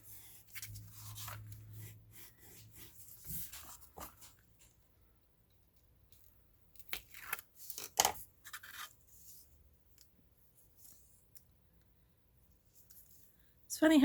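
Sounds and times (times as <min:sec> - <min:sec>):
hands rustling and scraping ribbon: 0:00.0 - 0:04.8.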